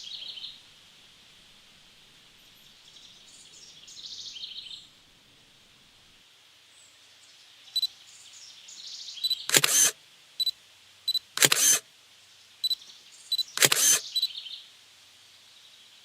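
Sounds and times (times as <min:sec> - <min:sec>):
camera focus beeps: 0:09.2 - 0:11.8, 0:12.6 - 0:14.3
camera shutter release: 0:09.3 - 0:10.0, 0:11.1 - 0:11.8, 0:13.4 - 0:14.2.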